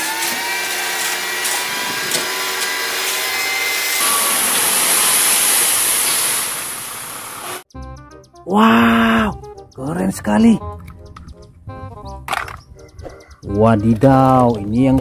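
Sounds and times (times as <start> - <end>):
truck engine and hydraulic whine: 0.0 - 7.6.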